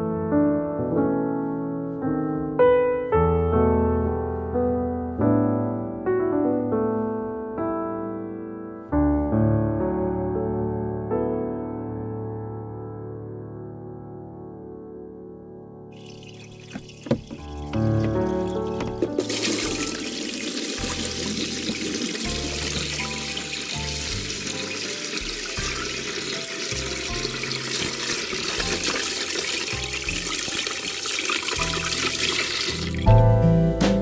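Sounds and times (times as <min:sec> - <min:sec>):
water gushing: 0:16.0 - 0:33.2
background music with bass: 0:31.6 - 0:34.0.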